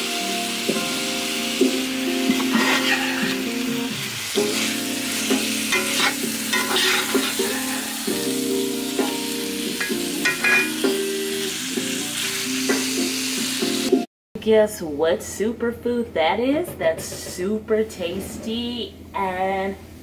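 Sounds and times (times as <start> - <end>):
background music held notes: 0.0 - 14.0
chicken and onions sizzling: 0.0 - 14.1
metal spatula scraping pan: 2.3 - 3.5, 5.6 - 8.2, 9.8 - 10.8.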